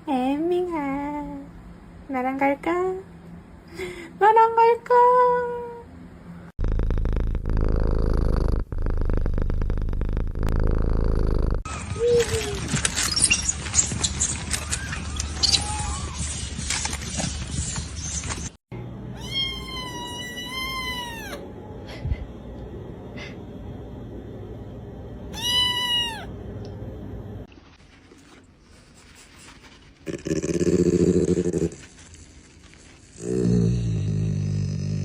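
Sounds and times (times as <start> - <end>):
cat meowing: 19.2 - 21.4, 25.3 - 26.3.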